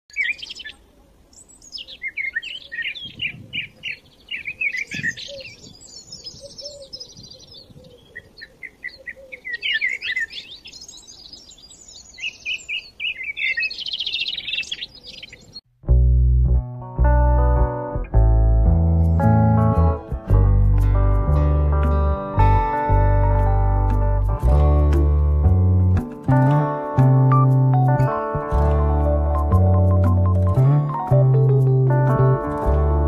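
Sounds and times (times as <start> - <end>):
songbirds chirping and trilling: 0.1 - 15.7.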